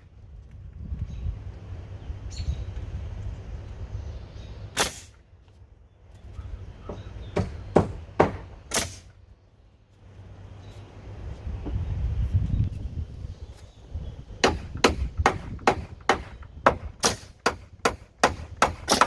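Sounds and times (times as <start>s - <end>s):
nail gun shots: 4.8s - 5.2s, 7.4s - 9.1s, 14.4s - 19.0s.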